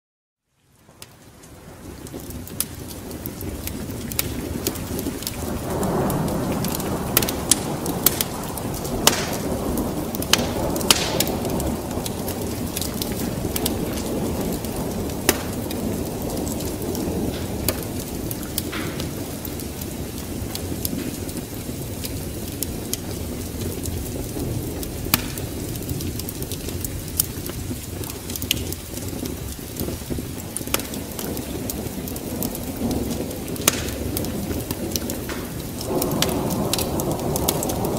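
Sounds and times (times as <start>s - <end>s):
rain: 0.4s - 37.9s
wood fire crackling and popping: 0.6s - 37.9s
low rumble of thunder: 1.6s - 37.9s.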